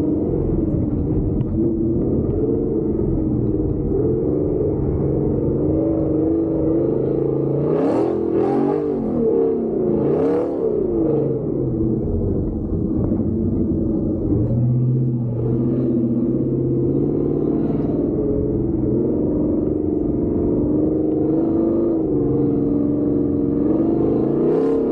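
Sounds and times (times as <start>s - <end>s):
truck engine running hard: 0.0s - 24.9s.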